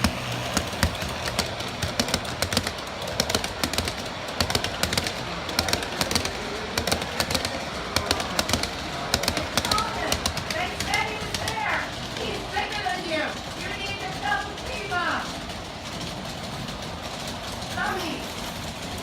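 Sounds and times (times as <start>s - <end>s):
model train rumble: 0.0s - 19.0s
model train wheels clicking on rails: 0.0s - 19.0s.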